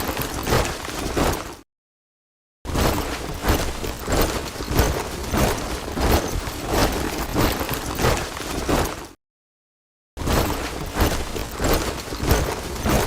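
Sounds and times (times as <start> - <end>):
soldiers marching in step: 2.9 - 9.2.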